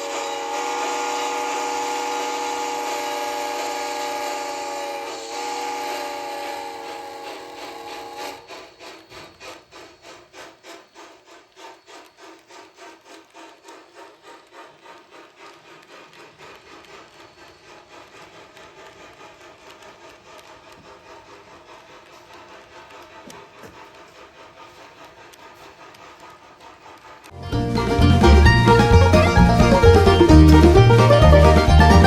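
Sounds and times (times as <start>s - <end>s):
model train whistle: 0.0s - 8.4s, 27.5s - 32.0s
model steam locomotive chuffing: 0.0s - 32.0s.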